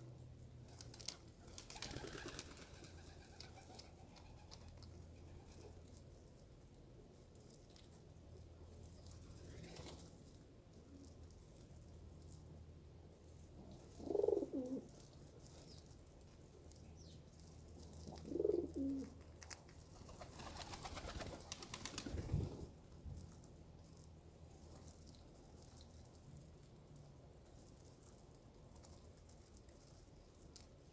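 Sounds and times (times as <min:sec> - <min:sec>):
rattling wing flutter: 0:01.6 - 0:03.2
pigeon cooing: 0:13.9 - 0:14.9, 0:18.0 - 0:19.2.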